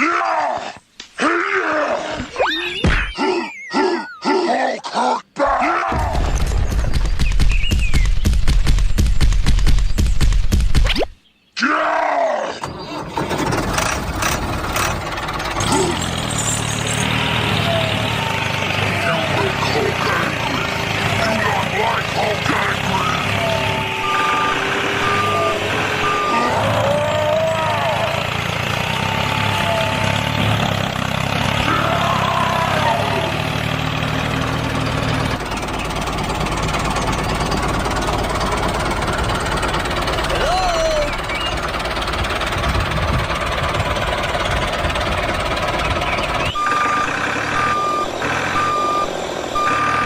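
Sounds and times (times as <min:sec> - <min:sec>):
vehicle engine humming: 0:12.6 - 0:50.0.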